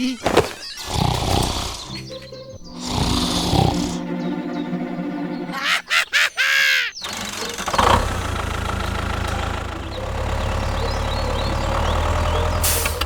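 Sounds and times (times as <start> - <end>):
engine running with low rumble: 7.0 - 13.0.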